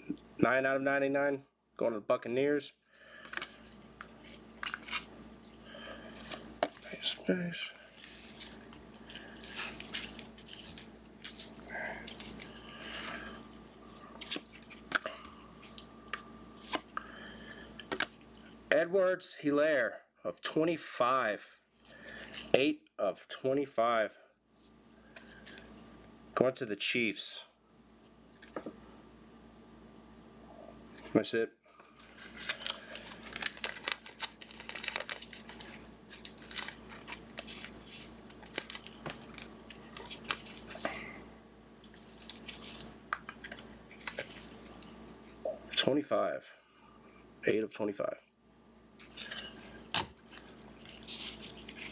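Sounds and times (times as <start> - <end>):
plastic and foil packaging crinkling: 3.2 - 15.9, 21.7 - 22.6, 31.8 - 41.2, 41.8 - 45.4, 49.0 - 51.9
cards rustling: 3.2 - 16.9, 31.8 - 41.1, 41.8 - 45.4, 49.0 - 51.9.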